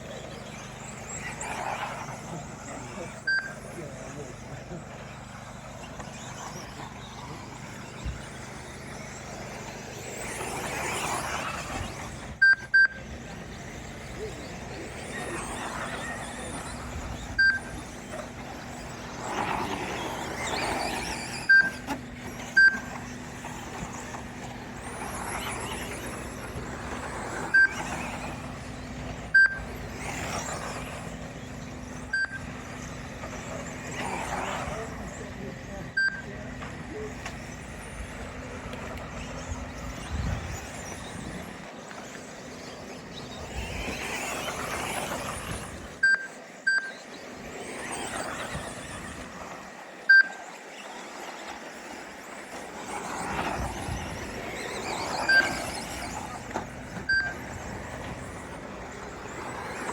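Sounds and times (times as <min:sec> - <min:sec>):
toy truck motors whining: 0:00.0 - 0:59.9
short high timing beeps: 0:03.3 - 0:03.6, 0:12.4 - 0:13.0, 0:29.4 - 0:29.6, 0:36.0 - 0:36.3, 0:46.0 - 0:47.0.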